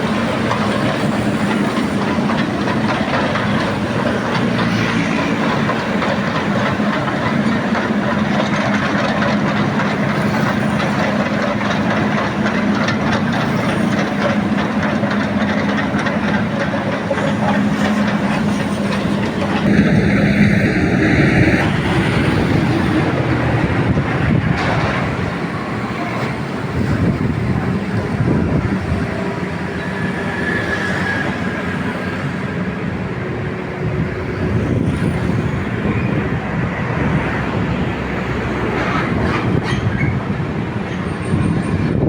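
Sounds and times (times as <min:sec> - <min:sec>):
diesel engine humming: 0:00.0 - 0:42.0.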